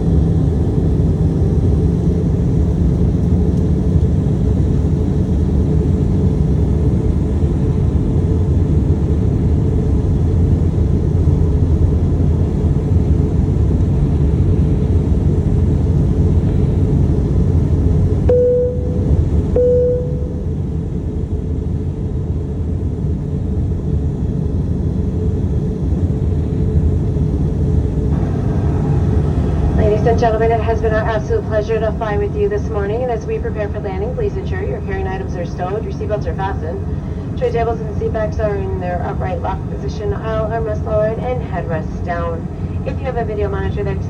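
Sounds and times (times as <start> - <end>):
jet engines and airflow rumble: 0.0 - 44.0
short cabin tones: 18.3 - 20.6.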